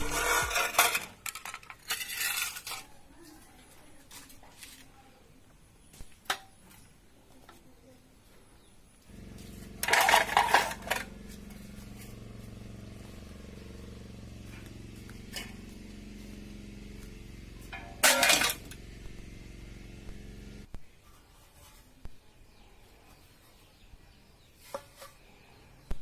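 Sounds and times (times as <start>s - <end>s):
loud clatter: 9.1s - 20.7s
motor humming: 9.1s - 20.7s.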